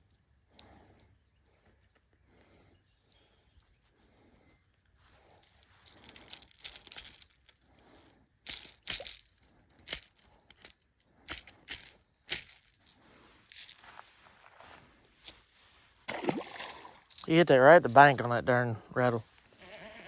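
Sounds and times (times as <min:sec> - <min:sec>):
fishing lure rattling: 0:05.2 - 0:14.0.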